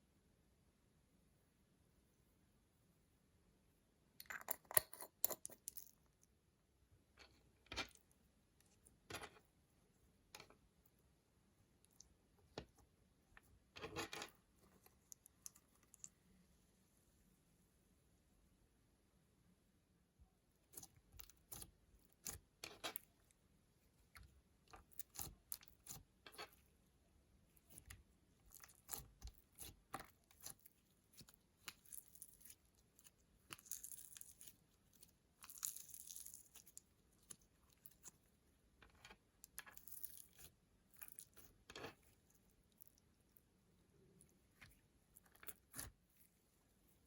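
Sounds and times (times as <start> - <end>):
hands working sticky slime: 20.4 - 47.0.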